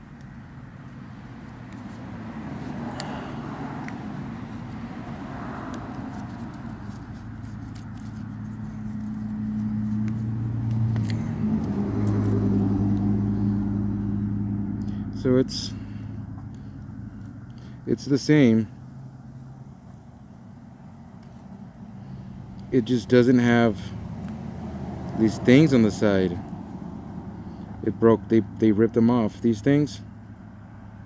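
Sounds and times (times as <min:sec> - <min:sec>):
engine running low hum: 0:00.0 - 0:31.0.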